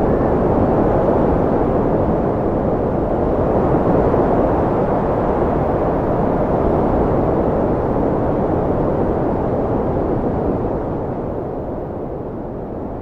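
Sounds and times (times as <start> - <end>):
strong wind rushing: 0.0 - 13.0.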